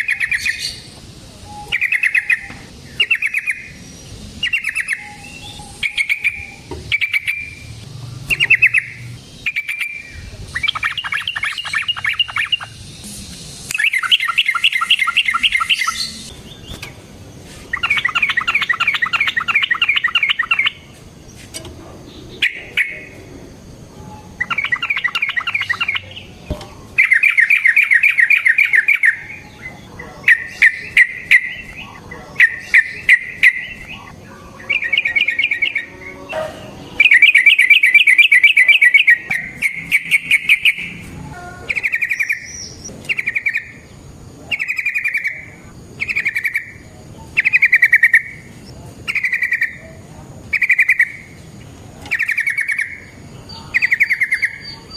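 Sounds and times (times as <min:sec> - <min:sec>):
bird singing chattering notes: 0:00.0 - 0:54.9.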